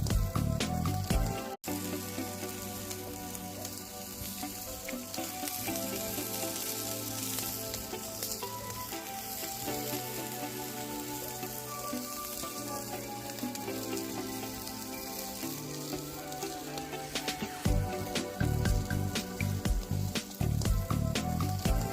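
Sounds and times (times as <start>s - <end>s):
music with heavy beat: 0.0s - 1.6s, 17.1s - 21.9s
meat sizzling over campfire: 0.0s - 21.9s
soft sustained music tones: 0.0s - 21.9s.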